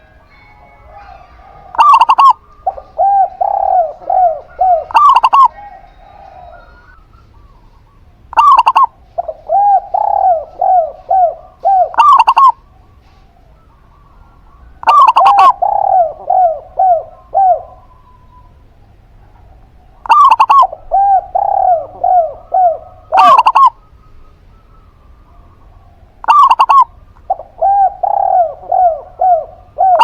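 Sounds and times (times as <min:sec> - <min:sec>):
doves cooing: 0:00.0 - 0:30.0.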